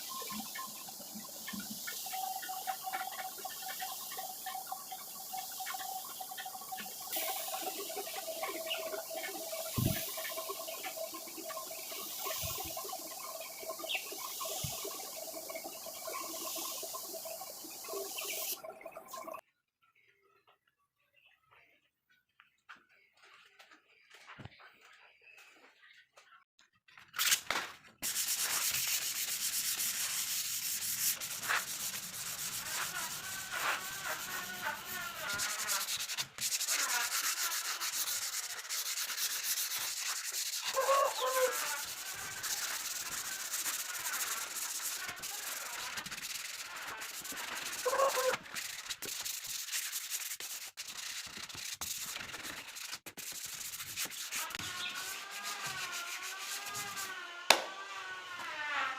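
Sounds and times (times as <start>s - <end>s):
sanding wood: 28.0s - 57.3s.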